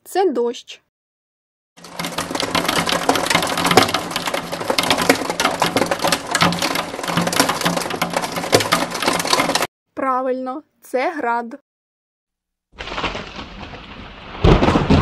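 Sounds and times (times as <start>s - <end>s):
hail pelting a hard surface: 1.8s - 9.7s, 12.8s - 15.0s.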